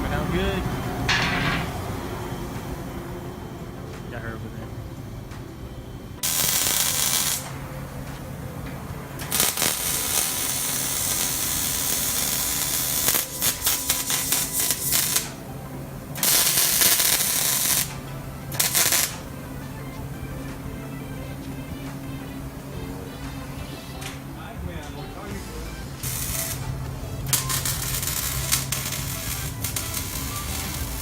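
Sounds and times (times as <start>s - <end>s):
quiet background music: 0.0s - 31.0s
steady low hum: 0.0s - 31.0s
loud hissing bursts: 6.2s - 7.6s, 9.2s - 15.4s, 16.2s - 19.2s, 26.0s - 26.7s, 27.3s - 31.0s.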